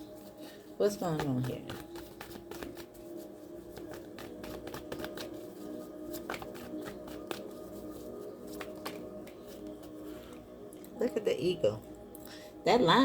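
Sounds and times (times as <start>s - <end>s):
soft background music: 0.0s - 13.0s
cards clicking and flicking: 1.1s - 3.0s, 3.7s - 5.5s, 6.1s - 7.6s, 8.4s - 9.7s.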